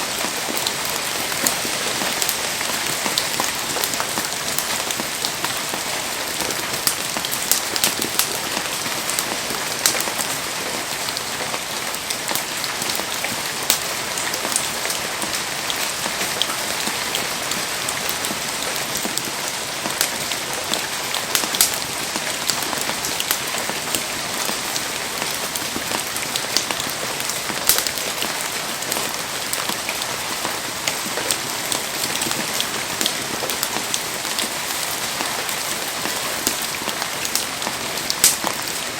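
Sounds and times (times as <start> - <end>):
heavy rain hiss: 0.0 - 38.9.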